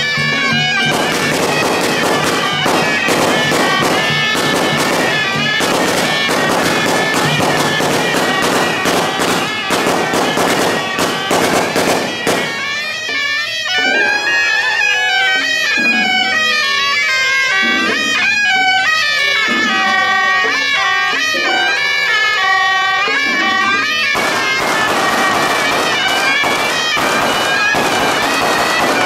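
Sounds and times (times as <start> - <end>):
firecrackers crackling: 0.0 - 13.8, 23.7 - 29.0
shrill shawm melody: 0.0 - 29.0.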